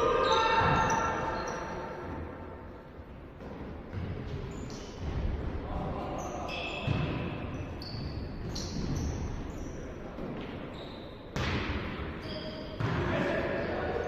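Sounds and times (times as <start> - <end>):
shoes squeaking on court floor: 0.1 - 2.1, 3.9 - 5.2, 6.0 - 13.8.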